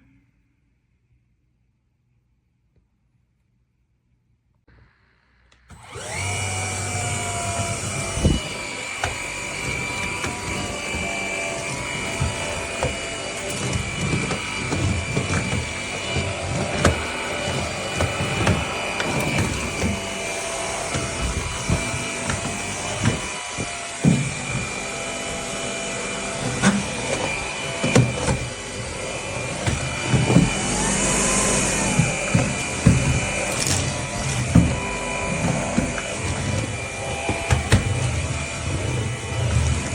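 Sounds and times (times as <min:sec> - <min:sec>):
vacuum cleaner whining: 0:04.8 - 0:39.9
knocks and rubbing: 0:07.0 - 0:25.7, 0:26.4 - 0:38.2.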